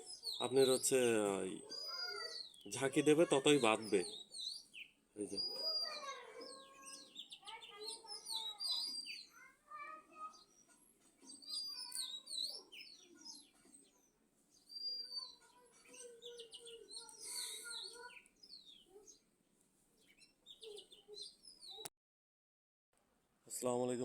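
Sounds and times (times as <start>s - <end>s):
birds chirping and calling: 0.0s - 19.3s, 19.9s - 21.9s.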